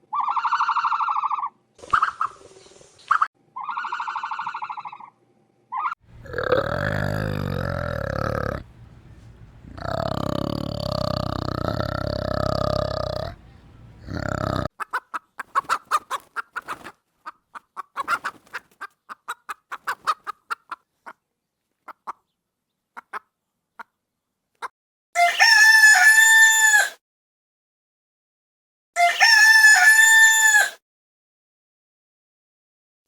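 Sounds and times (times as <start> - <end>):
animal call: 6.1 - 14.7
chickens clucking: 6.1 - 16.9.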